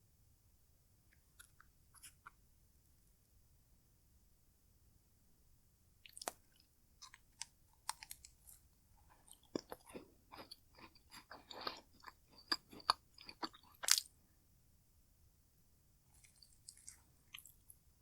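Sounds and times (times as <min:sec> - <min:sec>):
person chewing crunchy food: 0:06.0 - 0:14.1, 0:16.1 - 0:17.8.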